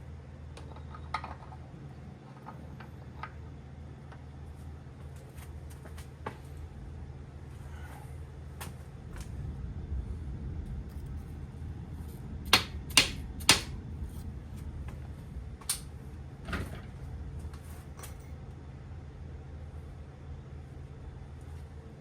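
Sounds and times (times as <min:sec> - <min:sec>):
steady low hum: 0:00.0 - 0:22.0
hard objects knocking: 0:12.5 - 0:13.7.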